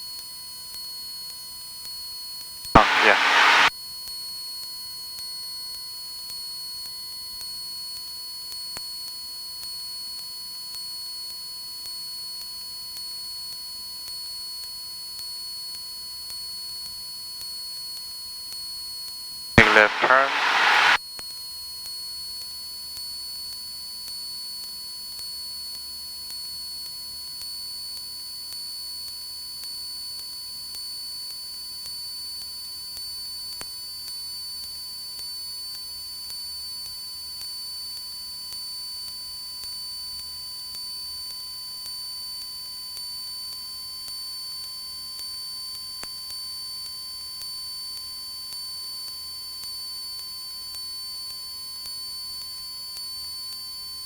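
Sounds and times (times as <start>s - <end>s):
electrical whine: 2.8s - 3.7s, 19.6s - 21.0s
muffled aircraft engine drone: 2.8s - 3.7s, 19.6s - 21.0s.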